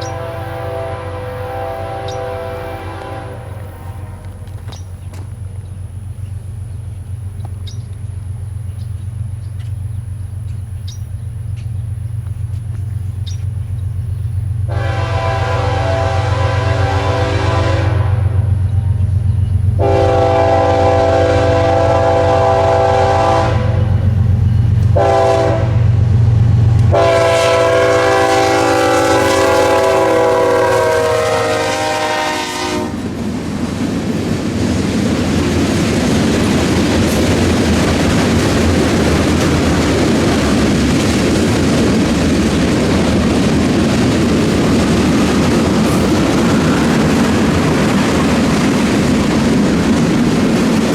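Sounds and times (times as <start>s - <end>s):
locomotive air horn: 0.0s - 4.6s, 14.7s - 18.6s, 19.8s - 24.2s, 24.8s - 26.0s, 26.9s - 33.2s
locomotive engine rumble: 0.0s - 50.9s
train wheels clacking on rails: 0.0s - 50.9s.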